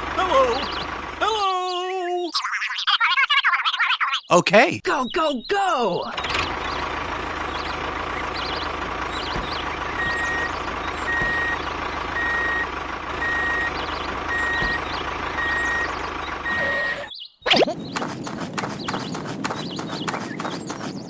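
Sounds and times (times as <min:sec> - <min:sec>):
truck engine running: 0:00.0 - 0:02.0, 0:06.0 - 0:17.1, 0:17.7 - 0:21.0
reversing alarm beeping: 0:07.6 - 0:17.2.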